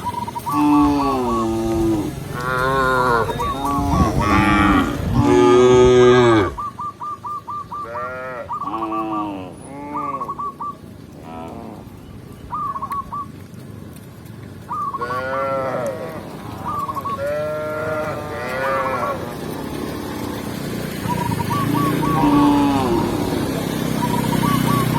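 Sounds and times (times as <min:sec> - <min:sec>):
cows mooing: 0:00.4 - 0:06.6, 0:07.8 - 0:10.3, 0:15.0 - 0:24.9.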